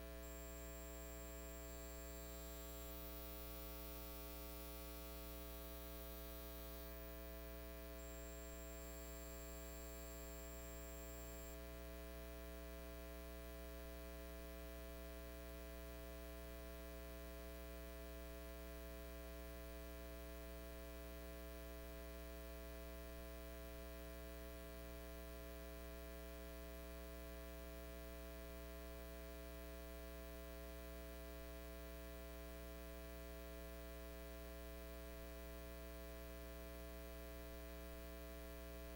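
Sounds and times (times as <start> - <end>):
electrical mains hum: 0.0 - 11.8.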